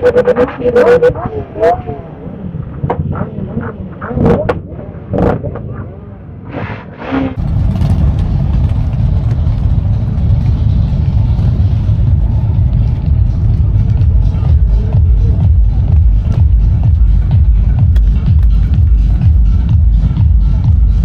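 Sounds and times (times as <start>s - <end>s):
motorcycle engine rumble: 0.0s - 21.0s.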